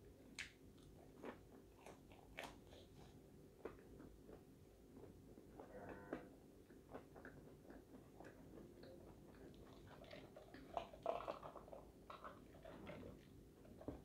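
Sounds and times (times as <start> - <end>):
chewing fried food: 0.2 - 14.0.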